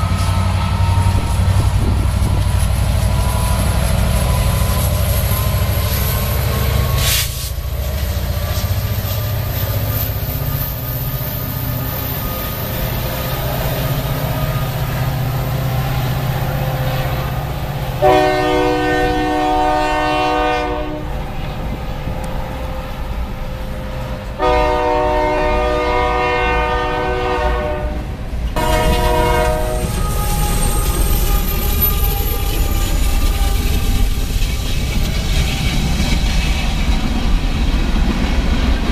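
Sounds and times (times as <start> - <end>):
locomotive air horn: 0.0 - 7.6, 15.9 - 21.5, 22.5 - 34.6
passing train rumble: 0.0 - 38.9
train wheels on rails: 0.0 - 38.9.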